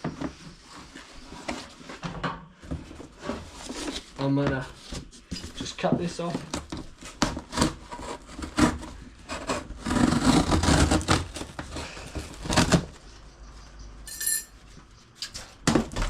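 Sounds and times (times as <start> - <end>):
packaging scraping and rustling: 2.8 - 13.0.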